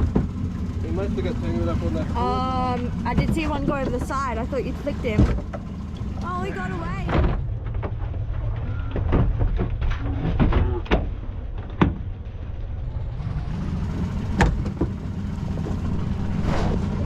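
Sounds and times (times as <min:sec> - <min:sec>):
knocks and clunks of gear: 0:00.0 - 0:00.5, 0:03.0 - 0:06.3, 0:07.0 - 0:12.7, 0:14.3 - 0:16.0
steady low rumble: 0:00.0 - 0:17.0.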